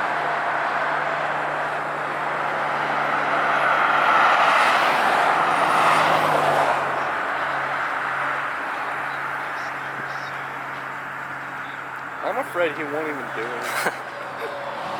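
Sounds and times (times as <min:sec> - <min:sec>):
car driving past: 0:00.0 - 0:07.5.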